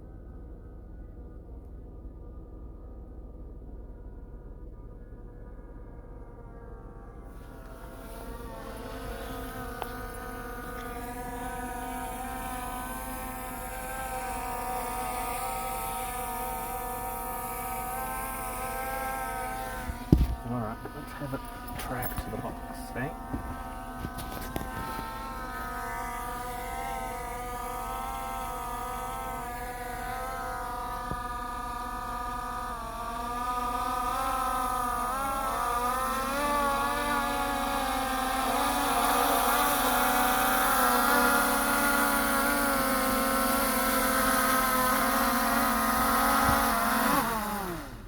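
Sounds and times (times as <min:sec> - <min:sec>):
drone propellers whining: 0:00.1 - 0:48.0.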